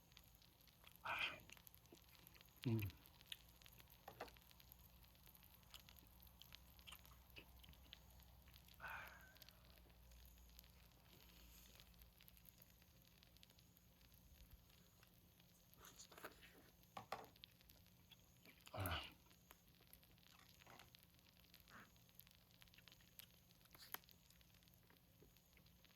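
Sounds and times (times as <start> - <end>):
person chewing: 0.8 - 4.5, 5.3 - 9.9, 15.7 - 25.3.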